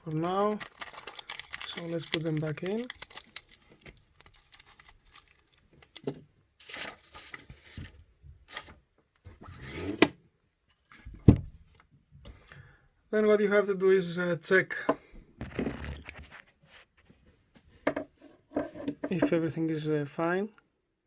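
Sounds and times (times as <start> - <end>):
packaging rustling: 0.0 - 7.8, 15.4 - 16.5.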